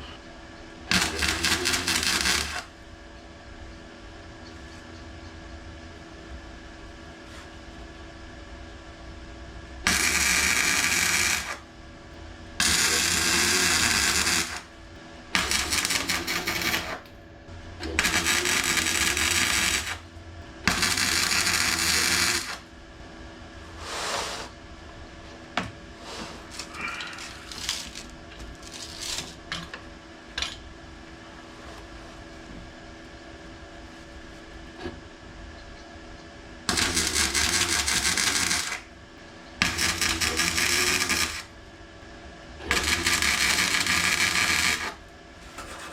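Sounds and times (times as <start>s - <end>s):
welder crackling: 0.9s - 2.7s, 9.8s - 11.6s, 12.6s - 14.7s, 15.3s - 17.1s, 17.9s - 20.0s, 20.7s - 22.6s, 26.5s - 29.4s, 36.7s - 38.8s, 39.6s - 41.5s, 42.7s - 45.0s.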